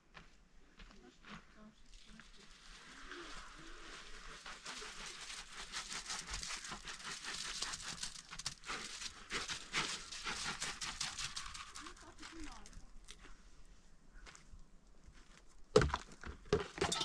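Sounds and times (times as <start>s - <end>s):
dense rustling and crackling: 1.8s - 13.4s.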